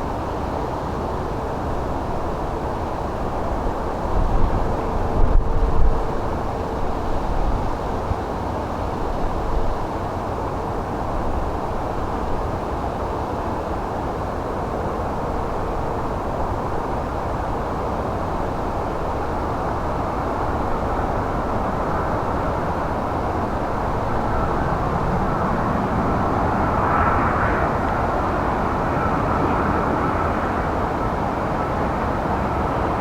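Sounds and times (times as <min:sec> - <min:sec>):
jet engines rumbling: 0:13.8 - 0:33.0.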